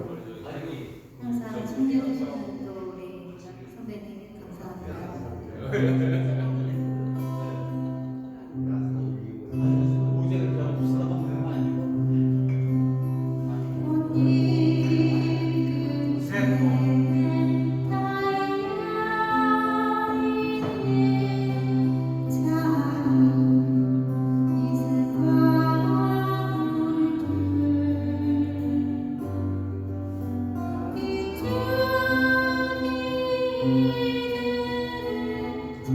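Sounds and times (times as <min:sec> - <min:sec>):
woman singing a slow ballad: 0:12.6 - 0:35.9.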